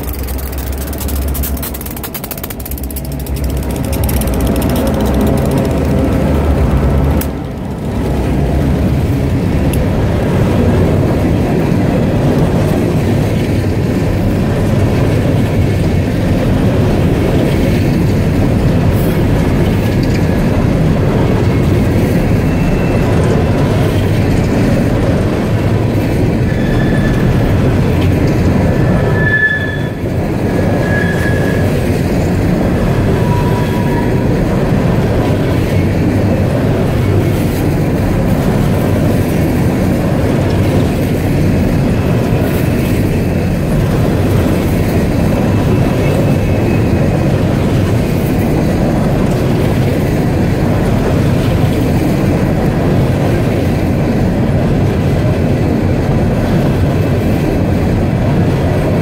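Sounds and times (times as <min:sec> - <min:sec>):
diesel locomotive engine drone: 0:00.0 - 0:59.0
freight cars rumbling and clattering: 0:00.0 - 0:59.0
high wheel squeals: 0:26.4 - 0:27.5, 0:28.8 - 0:31.9, 0:33.0 - 0:34.3.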